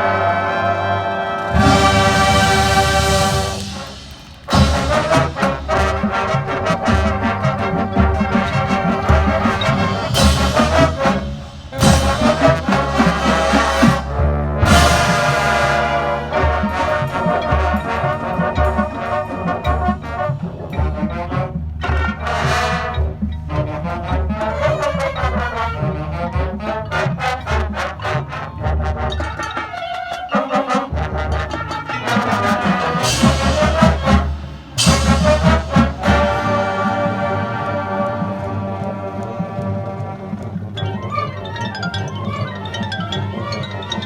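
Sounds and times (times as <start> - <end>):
brass section chords: 0.0 - 25.1, 30.9 - 40.4
cymbal crashes: 1.5 - 6.5, 33.0 - 36.6
steady drum beat: 1.5 - 26.6, 31.9 - 40.8.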